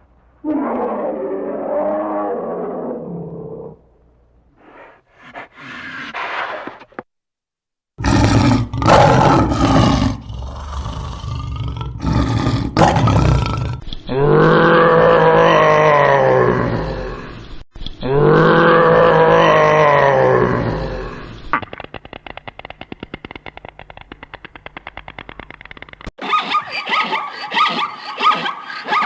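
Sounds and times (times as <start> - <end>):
large animal roaring and growling: 0.4 - 3.8, 8.0 - 17.4, 18.1 - 21.3.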